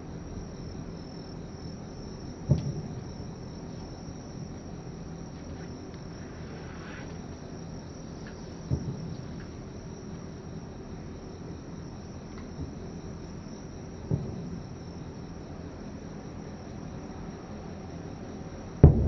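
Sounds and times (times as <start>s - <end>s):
night insects trilling: 0.0s - 19.0s
distant firework booms: 2.5s - 3.2s, 8.6s - 9.3s, 14.0s - 14.7s, 18.8s - 19.0s.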